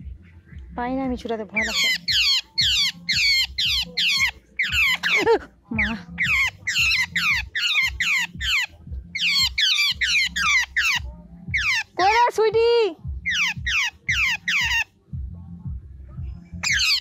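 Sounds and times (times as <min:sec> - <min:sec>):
bird harsh distress calls: 0:01.5 - 0:12.3, 0:13.2 - 0:14.9, 0:16.6 - 0:17.0.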